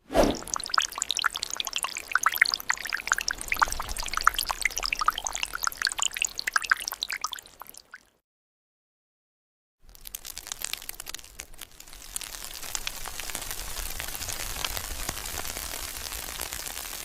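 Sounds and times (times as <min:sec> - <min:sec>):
water pouring and trickling: 0:00.0 - 0:08.1, 0:09.9 - 0:13.5
droplet plinks: 0:00.2 - 0:07.8.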